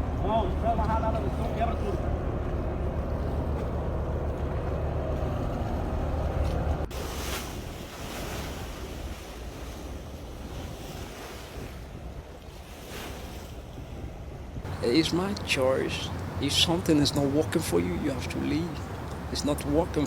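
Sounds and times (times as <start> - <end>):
boat engine running: 0.0 - 7.1, 14.7 - 20.0
waves: 0.0 - 20.0
wind buffeting microphone: 0.0 - 20.0.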